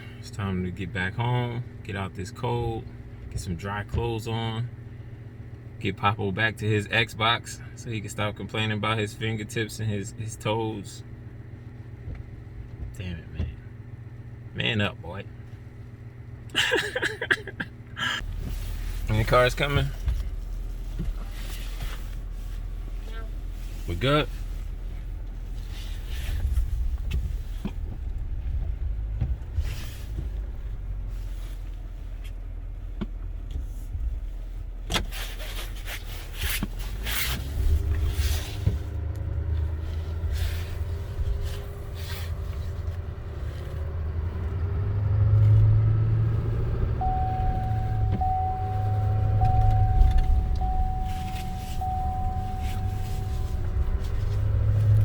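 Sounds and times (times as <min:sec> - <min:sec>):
engine and road rumble: 0:00.0 - 0:55.0
steady high tone: 0:46.9 - 0:53.9.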